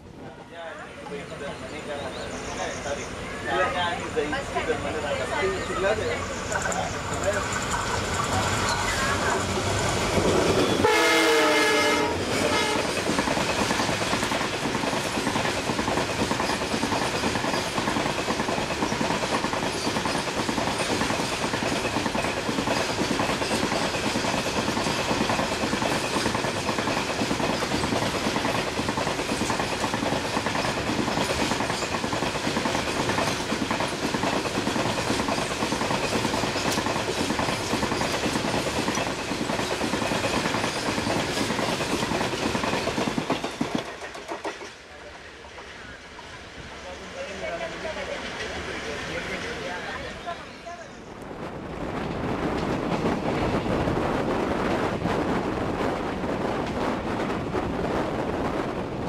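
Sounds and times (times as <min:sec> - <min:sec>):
train wheels clattering over joints: 0:06.0 - 0:44.9.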